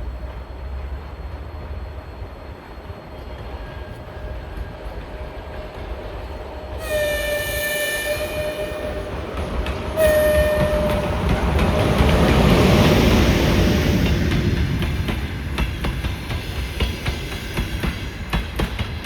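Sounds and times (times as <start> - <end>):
train running noise: 0.0 - 19.0
train horn blasts: 6.7 - 9.3, 9.9 - 11.6.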